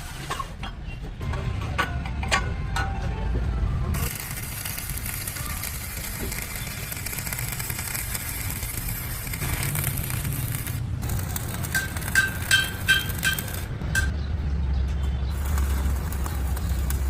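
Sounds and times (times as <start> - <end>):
mechanical rattling and whirring: 3.9 - 14.1, 15.3 - 17.0.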